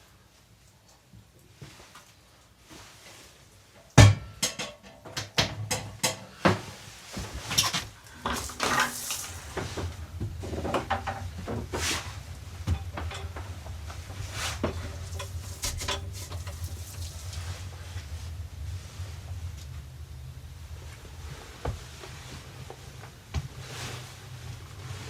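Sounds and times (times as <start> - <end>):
pots and pans clinking: 4.0 - 6.6, 7.6 - 9.9, 10.5 - 17.2
low steady rumble: 6.6 - 25.0.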